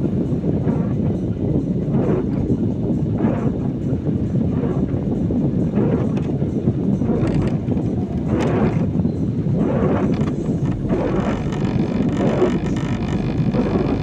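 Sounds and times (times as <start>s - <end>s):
car tyre noise on wet road: 7.0s - 14.0s.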